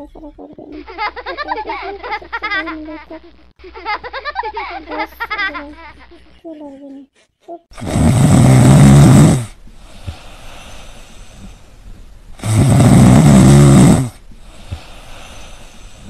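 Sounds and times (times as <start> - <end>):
loud snoring: 7.8 - 9.6, 12.4 - 14.2
faint hiss: 7.8 - 16.0.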